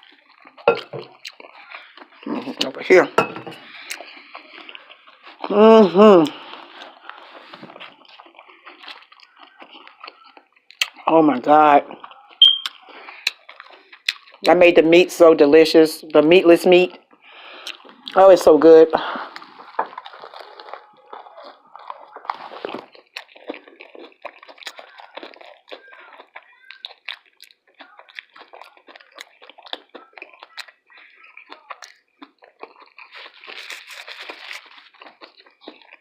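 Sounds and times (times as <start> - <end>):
chewing crisp taco shell: 0.0 - 3.0, 3.6 - 14.5, 16.7 - 18.4, 19.0 - 36.0
mouth clicks: 12.0 - 14.5, 16.9 - 18.2.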